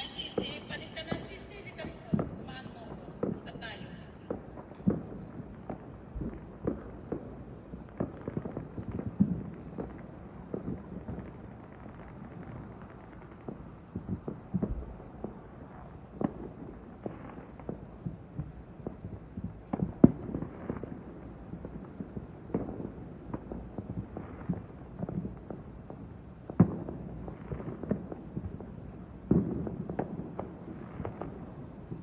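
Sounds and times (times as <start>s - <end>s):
distant fireworks bangs and pops: 0.0s - 32.0s.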